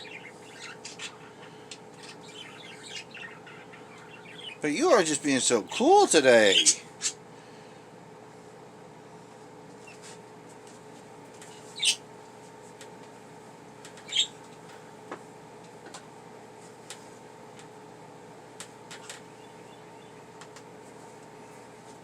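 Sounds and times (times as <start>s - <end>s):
faint steady hum: 0.0s - 22.0s
budgerigar chirps: 2.0s - 4.6s, 11.8s - 12.0s, 14.0s - 14.4s.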